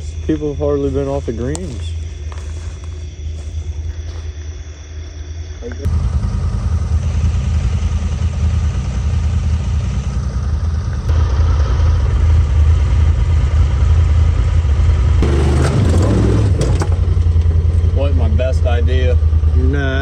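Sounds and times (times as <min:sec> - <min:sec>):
off-road vehicle engine running: 0:00.0 - 0:20.0
knocks and clattering: 0:15.2 - 0:17.9.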